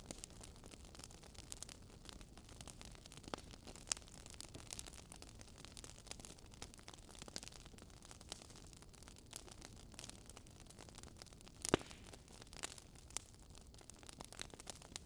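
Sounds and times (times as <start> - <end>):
wood fire crackling: 0.0 - 15.0
fire pops: 11.6 - 12.8.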